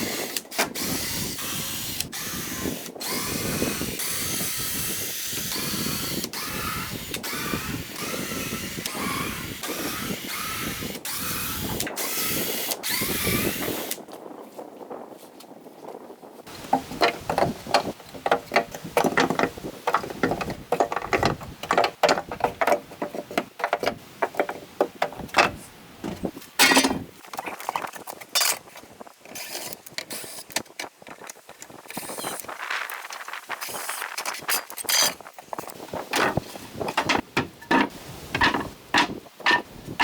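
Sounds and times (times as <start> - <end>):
tools and boards clinking and knocking: 16.5 - 28.6, 34.2 - 35.2, 36.1 - 39.7.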